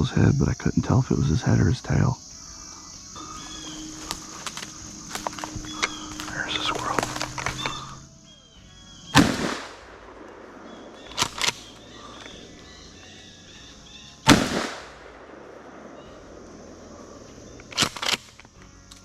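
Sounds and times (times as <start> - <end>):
shotgun shots: 9.1 - 12.4, 14.2 - 16.4, 17.6 - 18.4.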